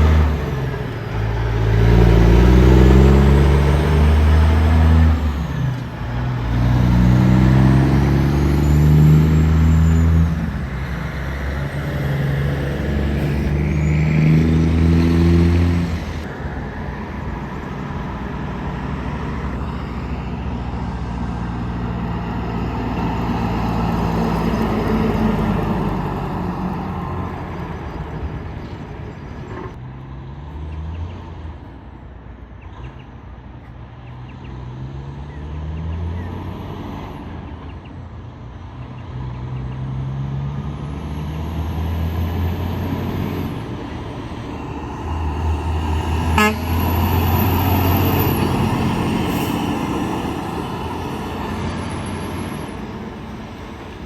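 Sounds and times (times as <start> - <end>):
passing traffic: 0.0 - 54.0
trucks passing close: 0.0 - 54.0.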